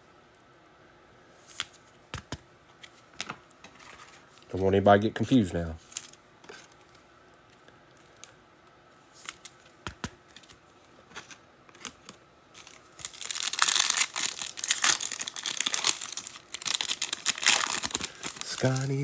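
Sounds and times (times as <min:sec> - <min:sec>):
foil wrapper crinkling and tearing: 0:11.2 - 0:19.0.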